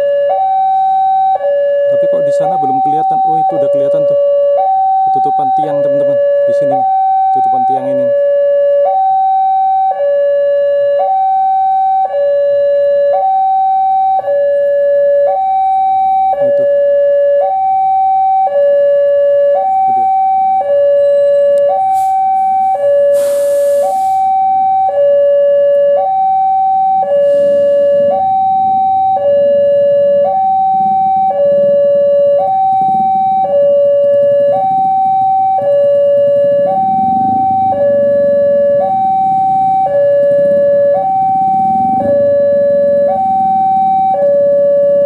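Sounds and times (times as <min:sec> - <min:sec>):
level crossing two-tone alarm: 0:00.0 - 0:45.0
brief hiss: 0:23.2 - 0:24.2.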